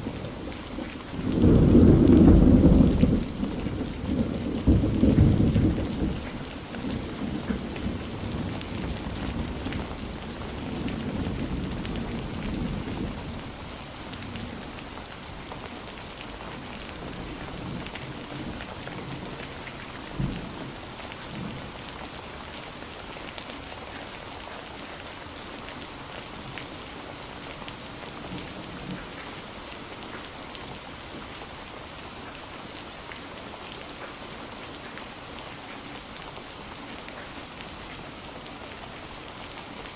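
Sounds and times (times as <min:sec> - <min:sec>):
low rumble of thunder: 0:00.0 - 0:22.0
steady rain falling: 0:00.0 - 0:39.9.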